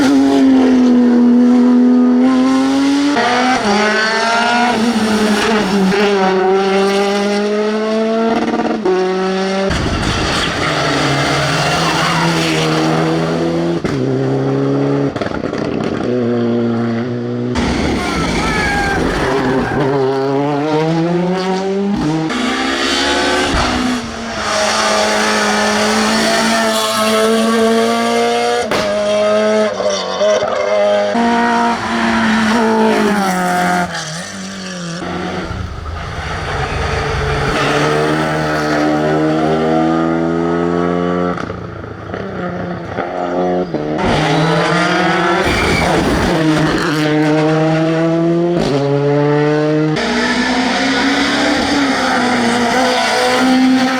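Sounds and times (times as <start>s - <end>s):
rally car engines revving: 0.0s - 53.9s.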